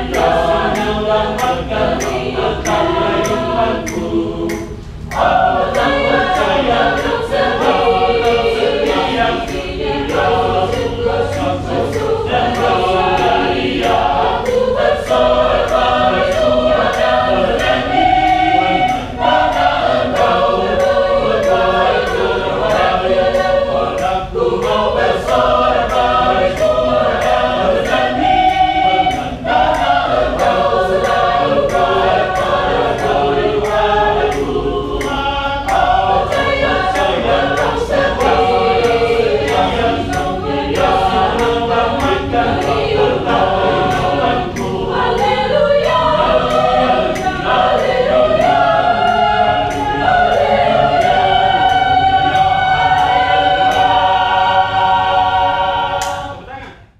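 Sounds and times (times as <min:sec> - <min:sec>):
choir singing a hymn: 0:00.0 - 0:56.9.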